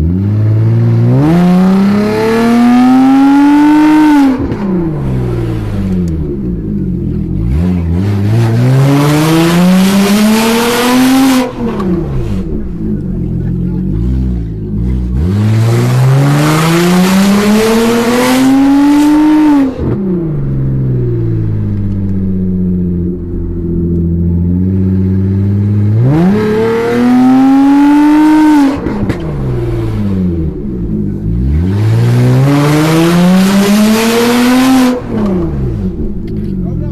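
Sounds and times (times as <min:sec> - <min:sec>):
unmuffled engine revving: 0:00.0 - 0:36.9.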